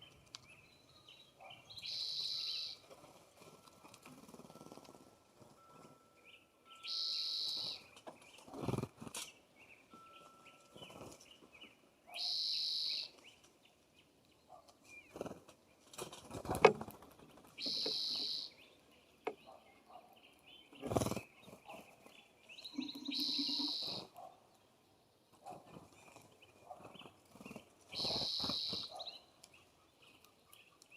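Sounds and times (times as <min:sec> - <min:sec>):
harsh high bird call: 0:01.8 - 0:02.8, 0:06.8 - 0:07.9, 0:12.1 - 0:13.2, 0:17.6 - 0:18.6, 0:22.7 - 0:24.1, 0:28.0 - 0:29.0.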